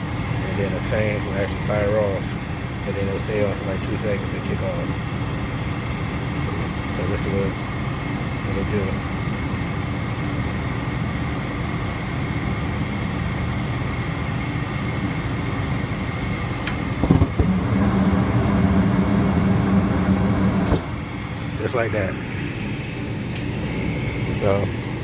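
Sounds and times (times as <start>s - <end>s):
furnace motor humming: 0.0s - 10.2s, 12.8s - 25.0s
burners lighting with a rush: 16.6s - 24.9s.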